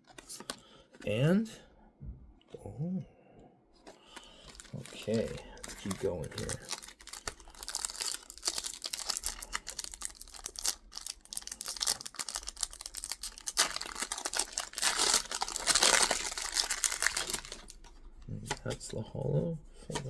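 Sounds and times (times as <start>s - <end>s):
plastic foil wrapper crinkling: 4.1s - 18.0s.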